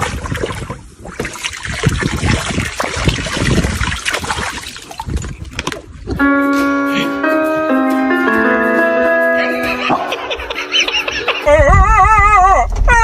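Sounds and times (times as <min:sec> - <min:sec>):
water splashing and sloshing: 0:00.0 - 0:06.2
piano music: 0:06.2 - 0:11.5.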